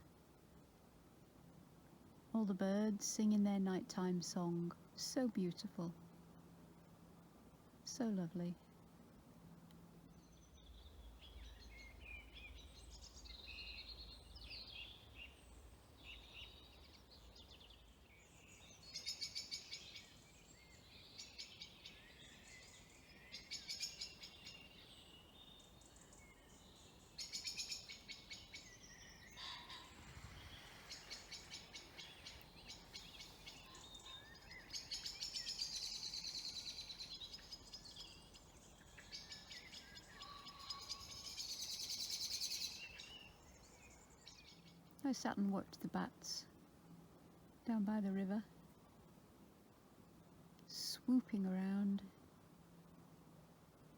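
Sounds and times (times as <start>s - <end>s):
songbirds warbling: 10.0s - 46.2s
rapid bird trills: 26.0s - 44.8s.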